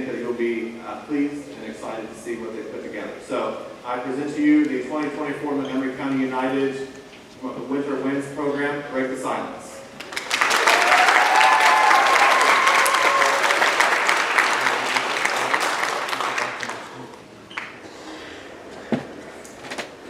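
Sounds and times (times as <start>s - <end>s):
audience cheering: 10.0s - 17.0s
audience applauding: 10.0s - 17.8s.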